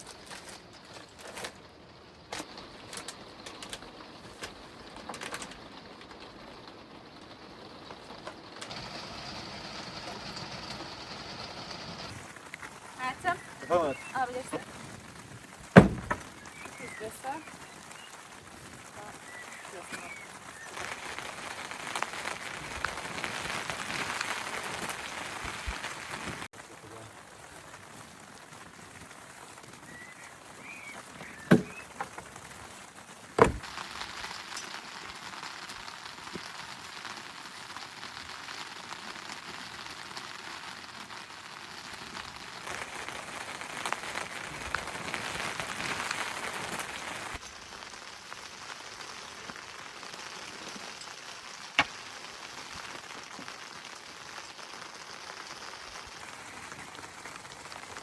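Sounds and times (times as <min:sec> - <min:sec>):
steady rain falling: 0:00.0 - 0:58.0
sharp knocks: 0:15.8 - 0:16.3, 0:31.5 - 0:31.8, 0:33.4 - 0:33.6.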